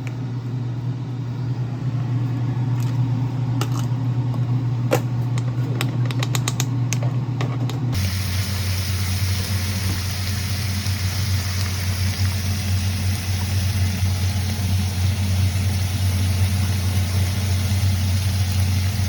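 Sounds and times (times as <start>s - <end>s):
low mechanical hum: 0.0s - 19.0s
hiss: 8.0s - 19.0s.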